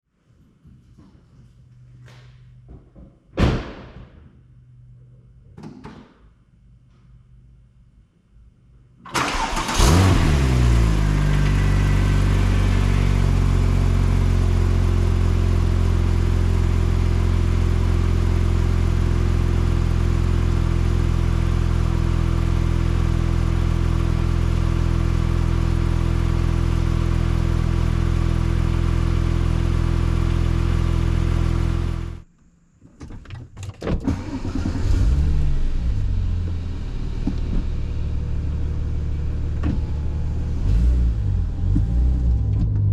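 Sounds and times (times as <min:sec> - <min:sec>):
car engine starting and idling: 0:09.0 - 0:32.2, 0:34.0 - 0:42.9.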